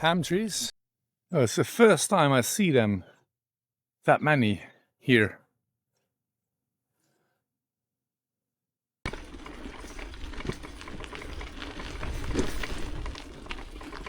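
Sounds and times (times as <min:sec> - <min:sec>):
bicycle tyres crunching on rough path: 0:09.1 - 0:14.0.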